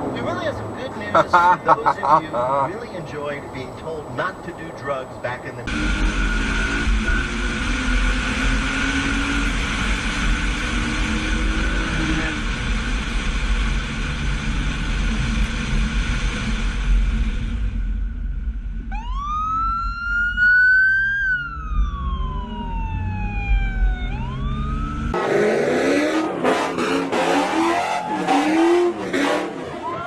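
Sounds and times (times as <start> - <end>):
car engine and road noise: 0.0 - 30.0
siren wailing: 18.8 - 30.0.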